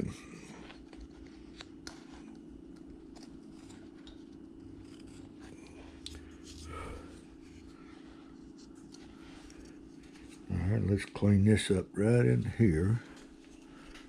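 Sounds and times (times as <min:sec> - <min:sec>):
knife shaving wood: 0:00.0 - 0:11.0
steady low hum: 0:00.0 - 0:14.0.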